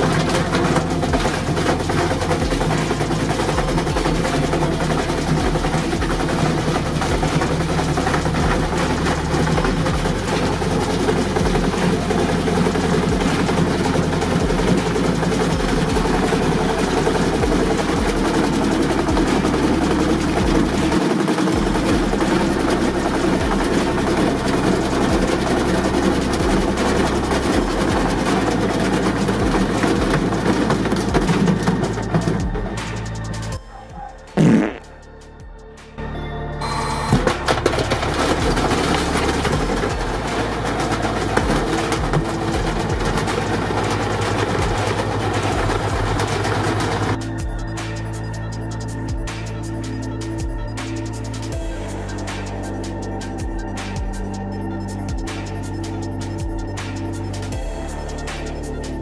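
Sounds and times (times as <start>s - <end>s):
washing machine spinning: 0.0s - 33.5s, 37.1s - 47.7s
low rumble from weight in drum: 0.0s - 33.7s, 37.1s - 47.7s.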